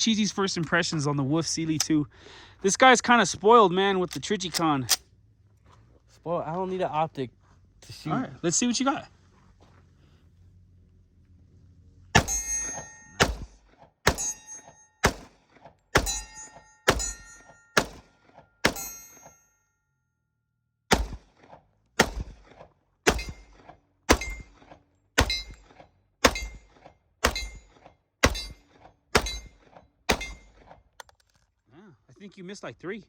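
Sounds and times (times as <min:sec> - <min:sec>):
pistol shots: 0:12.2 - 0:14.4, 0:15.0 - 0:16.3, 0:16.9 - 0:19.0, 0:20.9 - 0:30.6.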